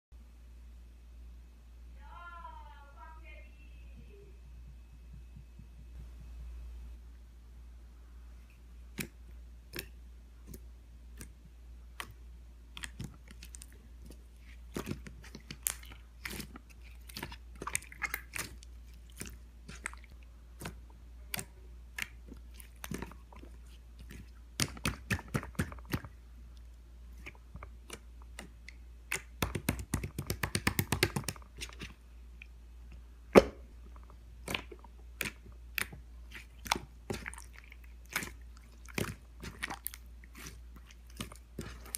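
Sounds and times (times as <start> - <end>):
slime clicking and popping: 8.9 - 13.7, 24.0 - 26.2, 27.2 - 32.5, 33.3 - 41.9.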